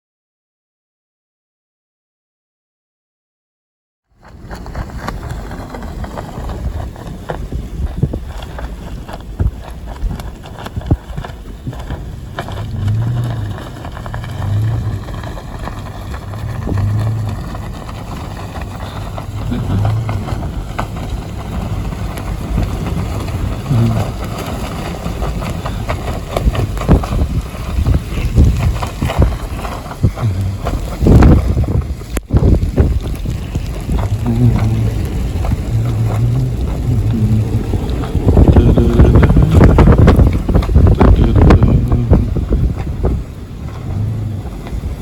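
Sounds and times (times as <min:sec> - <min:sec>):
rain crackling: 0:04.2 - 0:45.0
wind gusting against microphone: 0:04.2 - 0:45.0
short low hums: 0:12.6 - 0:21.1, 0:30.0 - 0:31.2, 0:34.0 - 0:42.6.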